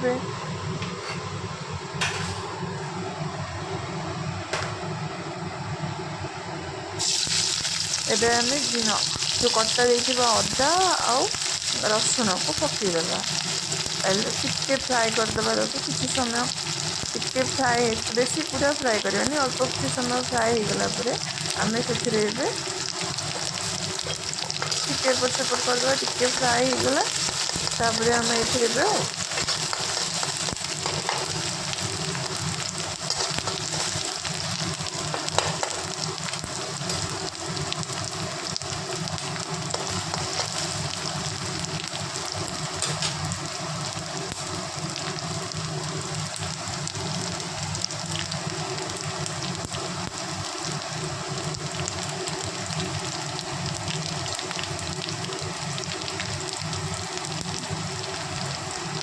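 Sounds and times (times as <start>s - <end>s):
garlic sizzling in hot oil: 7.0s - 59.0s.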